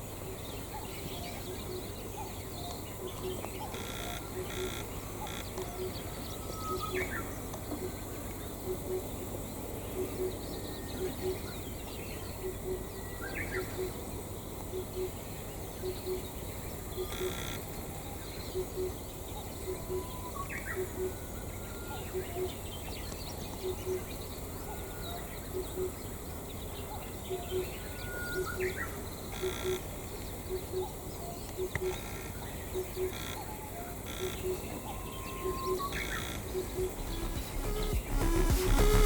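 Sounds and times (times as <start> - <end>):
outdoor background noise: 0.0 - 39.0
bird chirps: 0.7 - 9.1, 30.5 - 39.0
soft low pulse: 35.9 - 39.0.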